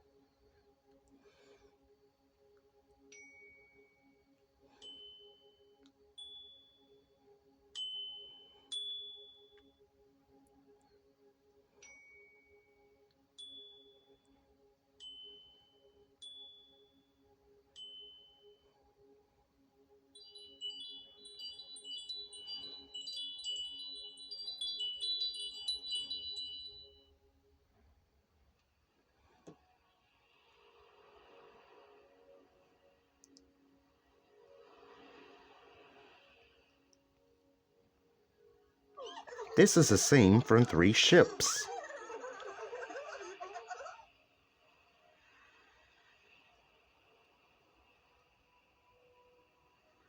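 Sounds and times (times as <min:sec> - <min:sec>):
bell-like dings: 0:20.2 - 0:27.0
wind chimes tinkling: 0:20.2 - 0:27.0.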